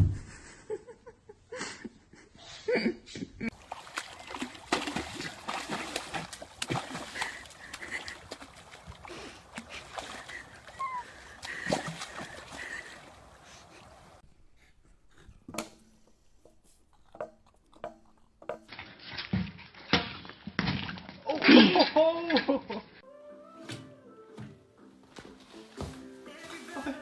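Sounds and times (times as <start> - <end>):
water splashing and sloshing: 3.5 - 14.2.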